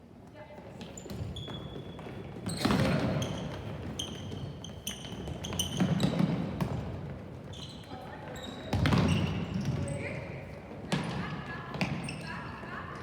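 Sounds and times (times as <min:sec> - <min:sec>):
sneaker squeaks on floor: 0:00.8 - 0:06.8, 0:07.5 - 0:10.2, 0:11.0 - 0:12.6
ball bouncing on court: 0:08.7 - 0:09.9.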